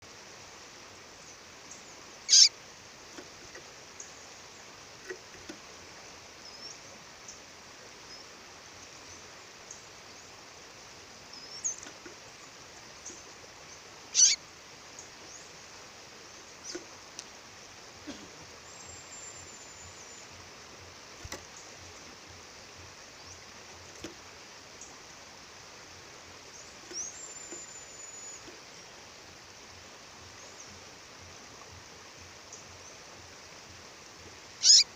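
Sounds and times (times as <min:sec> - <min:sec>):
songbird chirping: 0:01.1 - 0:34.9
high thin bird whistles: 0:02.3 - 0:02.5, 0:14.2 - 0:14.4, 0:34.6 - 0:34.9.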